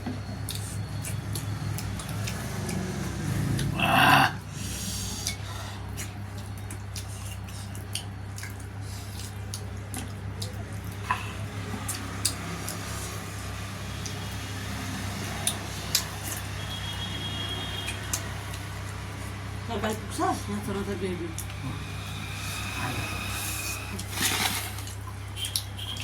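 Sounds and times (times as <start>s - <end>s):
wet chewing and lip smacking: 0.2s - 3.7s, 5.2s - 12.9s, 25.0s - 26.0s.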